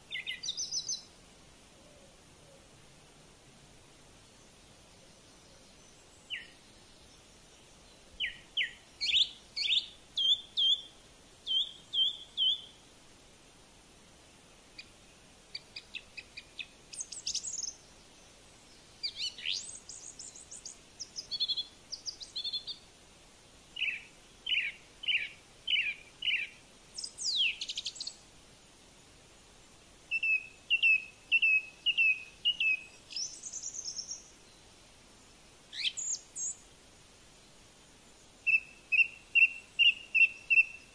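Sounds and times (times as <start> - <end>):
bird chirping and whistling: 38.5 - 40.8.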